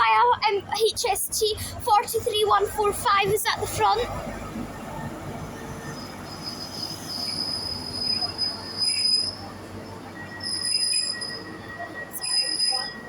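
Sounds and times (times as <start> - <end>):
low steady squeal: 4.3 - 13.0
train brakes squealing: 5.7 - 13.0.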